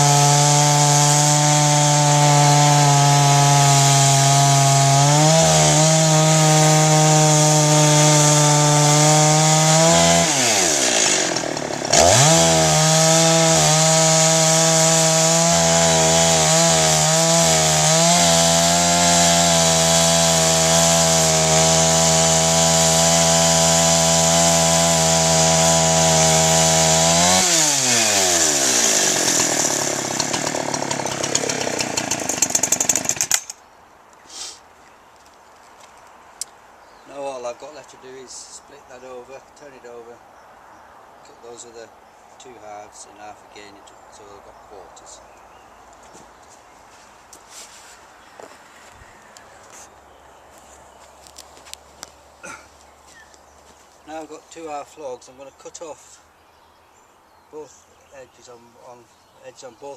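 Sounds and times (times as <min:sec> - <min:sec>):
chainsaw cutting through log: 0:00.0 - 0:33.6.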